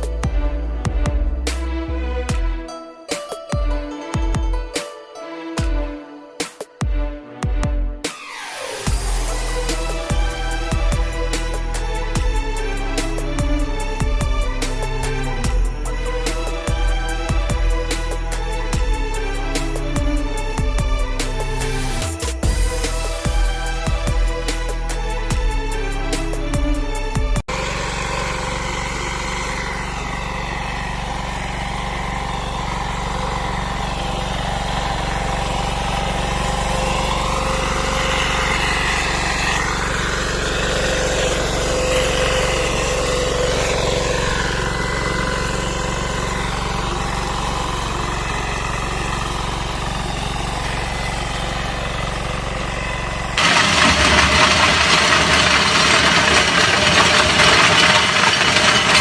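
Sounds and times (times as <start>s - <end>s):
tractor engine running: 8.4s - 59.0s
loud hissy machine sound: 53.4s - 59.0s.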